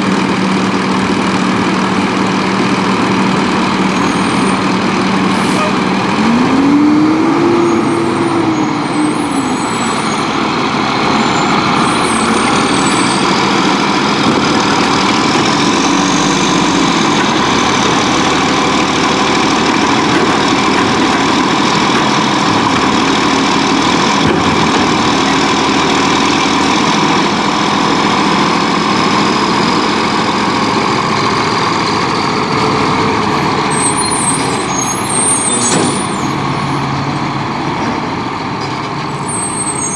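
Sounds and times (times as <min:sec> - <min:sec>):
garbage truck diesel engine: 0:00.0 - 0:39.9
high whine: 0:03.3 - 0:18.7.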